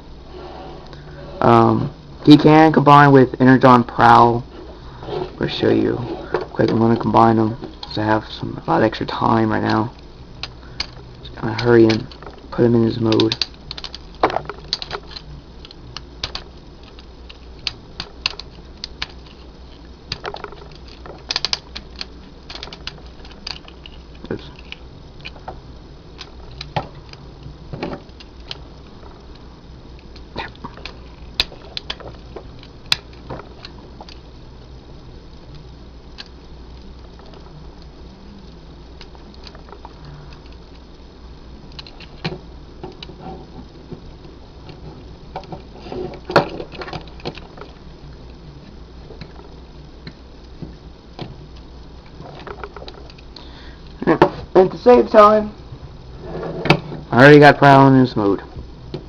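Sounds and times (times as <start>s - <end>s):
low steady hum: 0.0s - 59.0s
plastic toy parts clicking: 13.0s - 19.4s, 20.1s - 25.4s, 41.7s - 42.3s.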